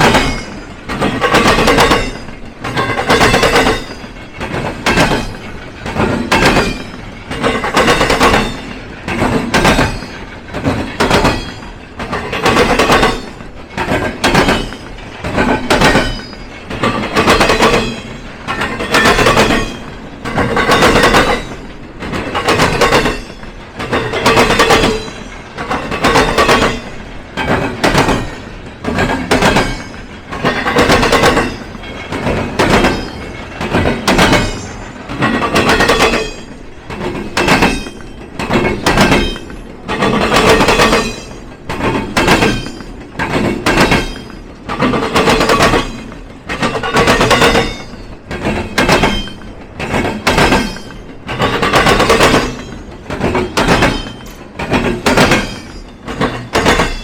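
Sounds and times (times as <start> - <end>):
train wheels clattering over crossing: 0.0 - 57.0.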